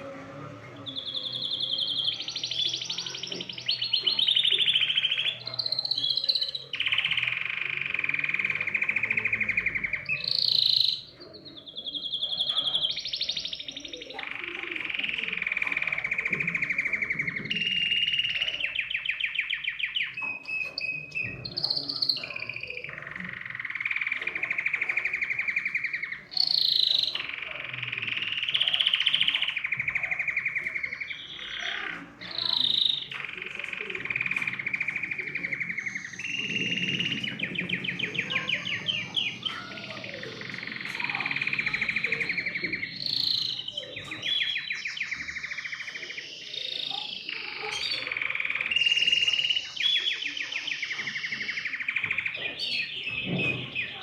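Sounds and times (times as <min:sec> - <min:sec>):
canary chirps: 0:00.0 - 0:54.0
canary trilling: 0:00.0 - 0:54.0.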